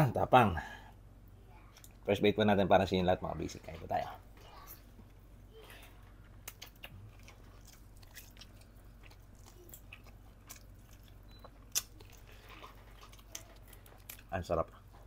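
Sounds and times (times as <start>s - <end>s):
biting and chewing: 6.1s - 15.0s.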